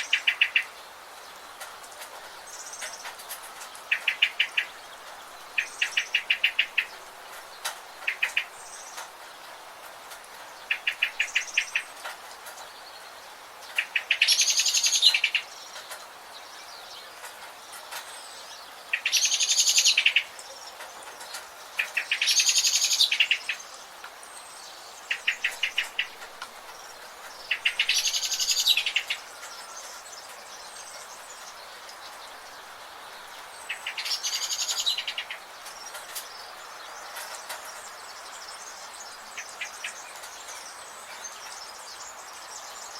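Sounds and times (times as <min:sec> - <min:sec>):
background hiss: 0:00.0 - 0:42.9
songbird trilling song: 0:00.0 - 0:42.9.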